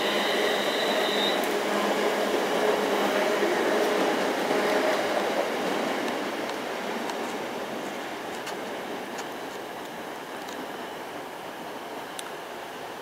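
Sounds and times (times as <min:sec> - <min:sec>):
thin high whine: 0:00.0 - 0:02.0
train wheels rumbling on rail: 0:00.0 - 0:13.0.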